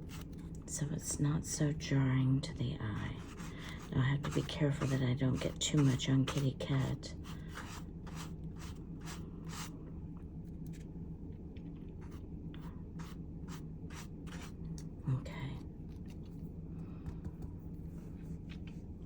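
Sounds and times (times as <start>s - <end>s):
faint steady hum: 0.0s - 19.0s
ink tool rubbing on paper: 3.0s - 9.7s, 13.0s - 14.6s.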